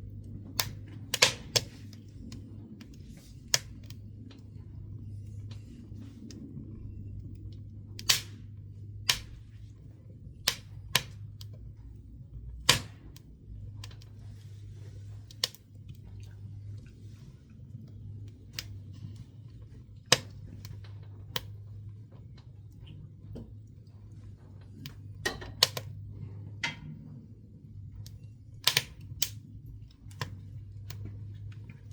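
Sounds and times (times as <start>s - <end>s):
low steady hum: 0.0s - 31.9s
wood burning in a stove: 0.0s - 31.9s
sharp pops of burning wood: 0.5s - 4.0s, 8.0s - 9.6s, 10.3s - 11.6s, 12.4s - 16.4s, 17.0s - 21.7s, 24.7s - 26.0s, 28.0s - 31.8s.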